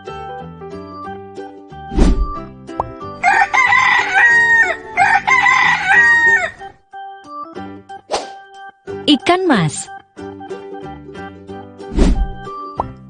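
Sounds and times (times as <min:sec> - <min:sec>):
rooster crowing: 0:03.2 - 0:06.7.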